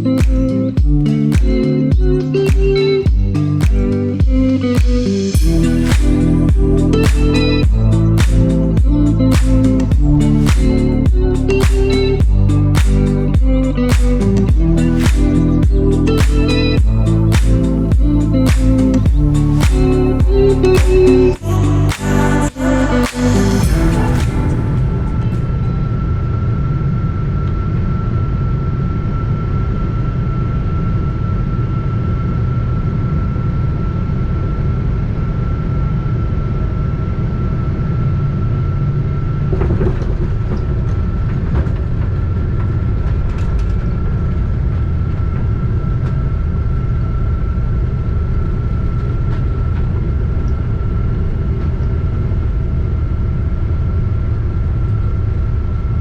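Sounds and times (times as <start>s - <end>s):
thin constant whine: 0.0s - 56.0s.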